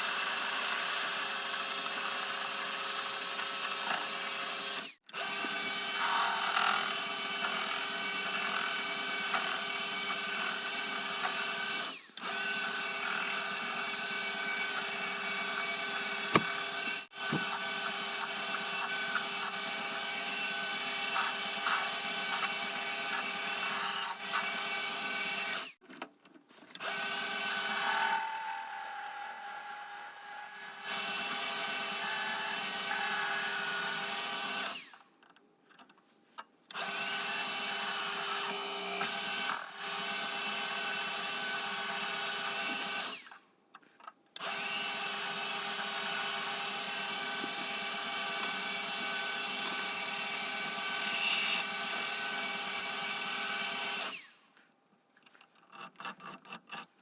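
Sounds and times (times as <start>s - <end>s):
metal lathe humming: 5.4s - 11.6s, 13.0s - 24.8s.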